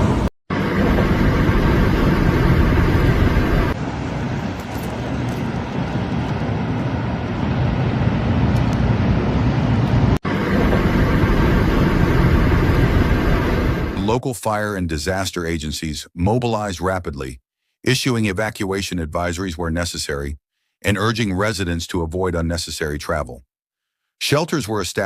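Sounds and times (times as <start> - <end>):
vehicle and road noise: 0.0 - 14.0.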